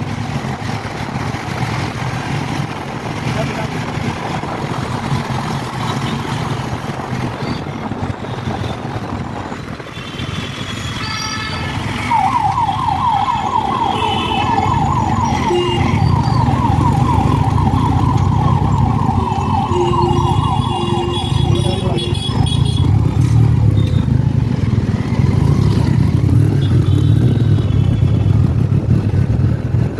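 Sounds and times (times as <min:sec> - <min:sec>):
motorcycle engine and wind rumble: 0:00.0 - 0:19.7, 0:20.3 - 0:29.9
road traffic: 0:00.0 - 0:29.9
vehicle horns honking: 0:10.0 - 0:12.2, 0:15.2 - 0:16.2, 0:19.6 - 0:22.9
siren sweeping: 0:11.0 - 0:26.5.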